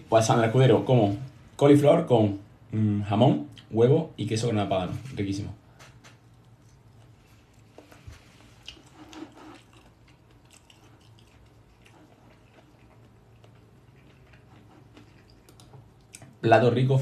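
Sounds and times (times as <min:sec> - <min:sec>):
person chewing food: 0:06.1 - 0:16.4.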